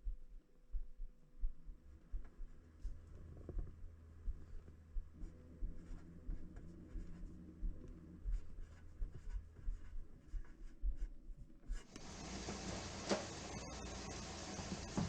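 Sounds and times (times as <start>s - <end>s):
steady hiss: 11.9s - 15.0s.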